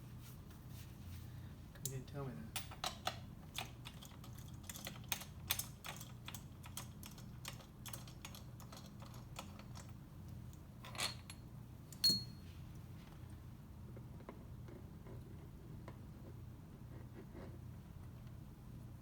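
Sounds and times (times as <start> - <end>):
metallic clink with ring: 12.0 - 12.5.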